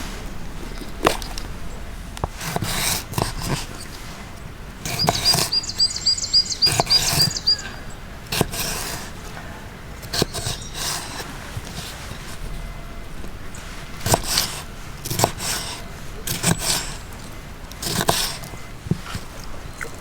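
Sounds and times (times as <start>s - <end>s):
songbird trilling: 4.8s - 8.1s, 10.2s - 11.2s.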